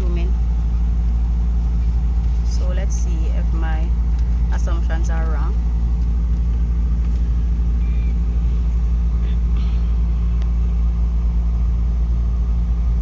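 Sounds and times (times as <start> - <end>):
car driving on highway: 0.0 - 13.0.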